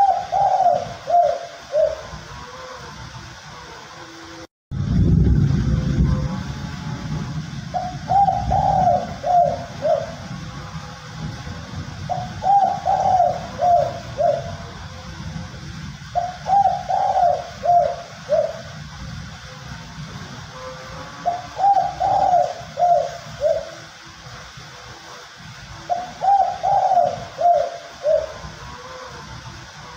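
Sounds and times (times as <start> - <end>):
dove cooing: 0.0 - 4.2, 7.7 - 10.3, 12.1 - 15.3, 16.0 - 19.6, 20.5 - 24.0, 25.8 - 29.9
low background rumble: 4.7 - 21.7.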